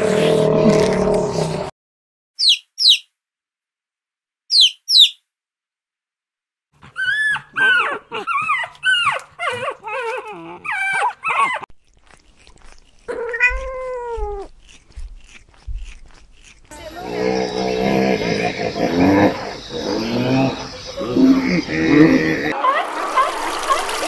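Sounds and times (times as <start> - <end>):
puppy whining: 6.8 - 11.7, 13.1 - 14.5
kitten meowing: 13.1 - 14.5.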